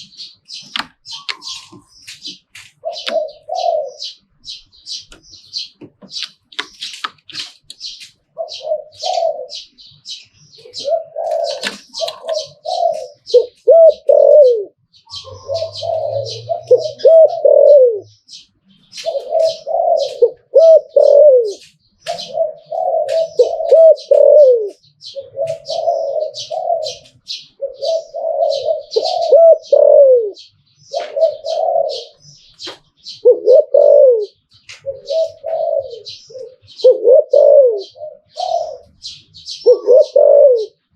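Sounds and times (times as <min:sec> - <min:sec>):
dove cooing: 0:00.0 - 0:40.9
small birds chirping: 0:00.0 - 0:40.9.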